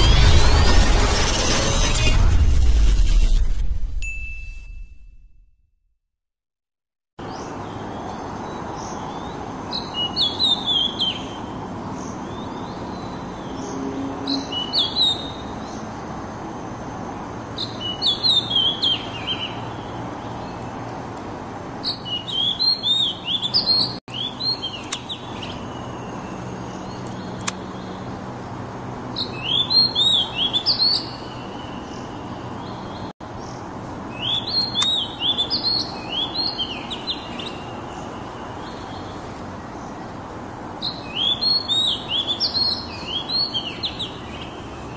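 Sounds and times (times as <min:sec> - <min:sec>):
bird singing whistled notes: 0:12.3 - 0:15.5, 0:29.2 - 0:33.0, 0:34.1 - 0:39.0, 0:40.8 - 0:44.5.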